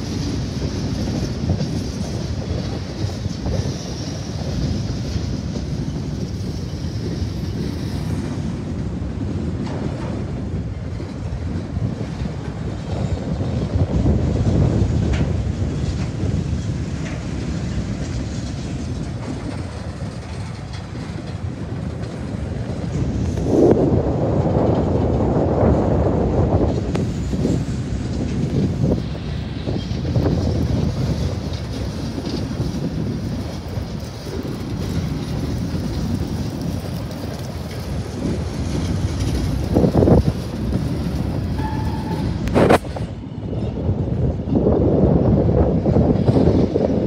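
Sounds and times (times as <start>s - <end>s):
freight cars rumbling on rails: 0.0s - 47.0s
wind on the microphone: 0.0s - 47.0s
brief steady tone: 41.6s - 42.8s.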